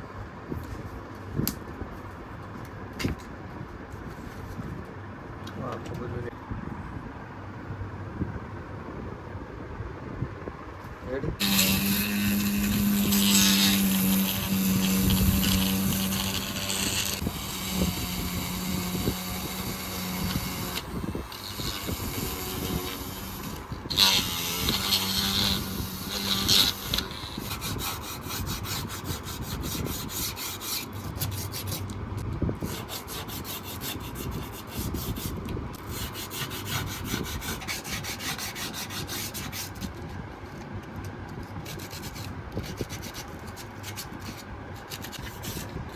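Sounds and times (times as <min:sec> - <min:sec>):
small motor humming: 0:11.4 - 0:28.0
rapid scraping strokes: 0:11.4 - 0:31.9.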